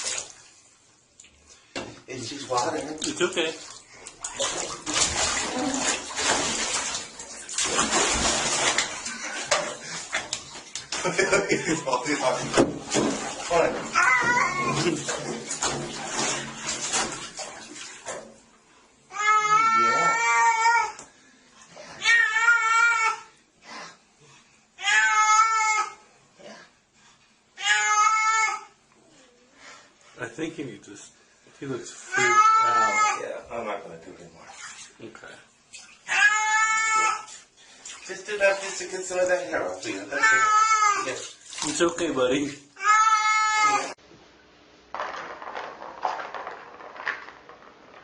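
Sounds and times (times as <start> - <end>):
water running into bathtub: 0.0 - 23.3, 31.6 - 44.0
cat yowling: 13.9 - 14.8, 19.1 - 21.0, 22.0 - 23.3, 24.8 - 26.0, 27.6 - 28.7, 32.1 - 33.2, 36.1 - 37.3, 40.1 - 41.1, 42.8 - 44.0.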